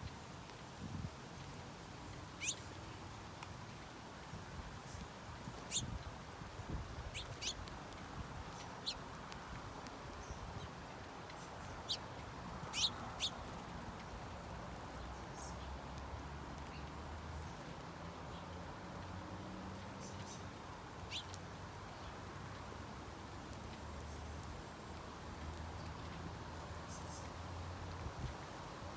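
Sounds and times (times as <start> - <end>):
birds chirping: 2.0 - 3.1, 4.8 - 6.1, 7.0 - 9.3, 10.1 - 16.0, 19.7 - 22.7.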